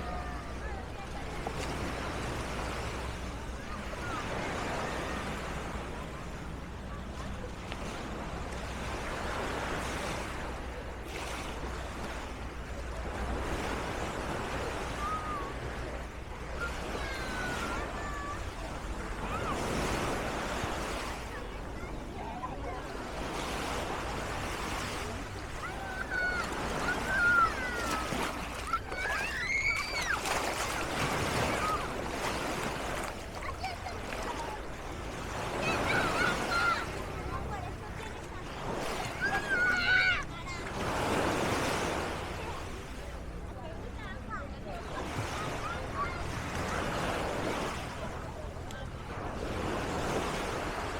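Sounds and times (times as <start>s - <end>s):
distant crowd: 0.0s - 50.9s
waves washing on sandy beach: 0.0s - 50.9s
high-pitched voices shouting: 26.3s - 30.4s.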